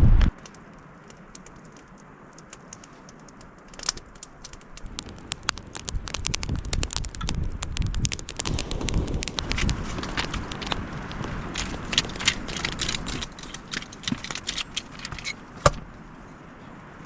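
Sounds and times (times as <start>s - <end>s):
wood fire crackling: 0.0s - 17.0s
low rumble: 6.0s - 13.5s.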